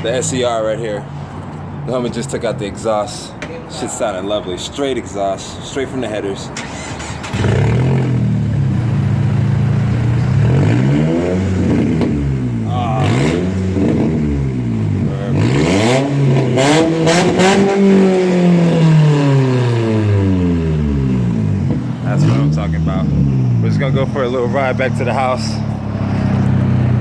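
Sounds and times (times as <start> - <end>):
exhaust cracks: 6.6 - 27.0
raspy car engine revving: 6.6 - 27.0.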